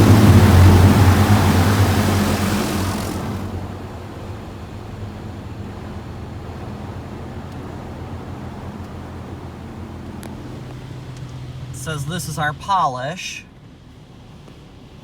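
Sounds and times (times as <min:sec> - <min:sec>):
high-pressure water spray hissing: 0:00.0 - 0:03.8
steady low hum: 0:00.0 - 0:04.2.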